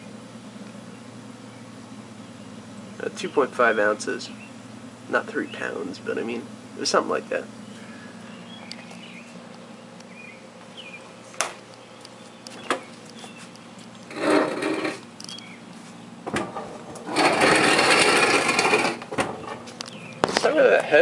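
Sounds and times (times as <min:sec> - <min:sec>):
low hum: 0:00.0 - 0:20.3
refrigerator scraping across surface: 0:14.1 - 0:15.0, 0:16.4 - 0:19.7.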